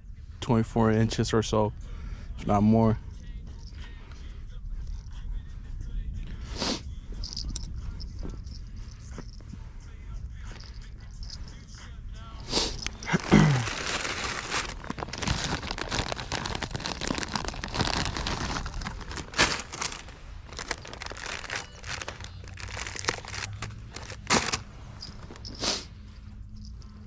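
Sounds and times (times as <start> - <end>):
crinkling and rustling handling noise: 7.2 - 9.7, 10.5 - 11.6, 12.7 - 27.0.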